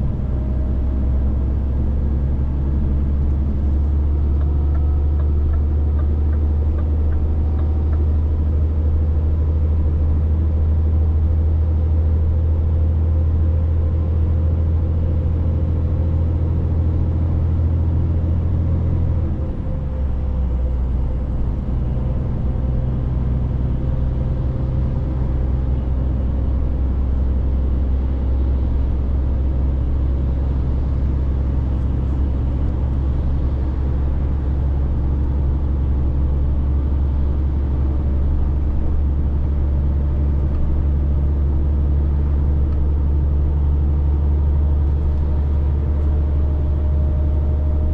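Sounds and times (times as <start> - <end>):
truck diesel engine running: 14.5 - 47.9.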